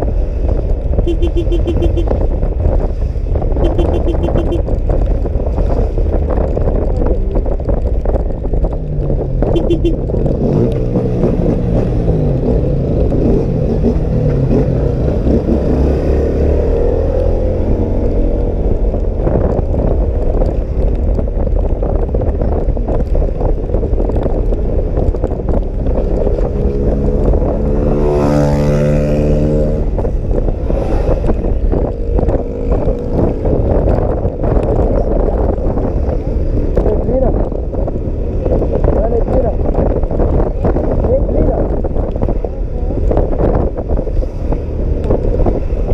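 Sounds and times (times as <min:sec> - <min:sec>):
wind rushing over microphone: 0:00.0 - 0:45.9
vehicle engine passing by: 0:25.7 - 0:33.6.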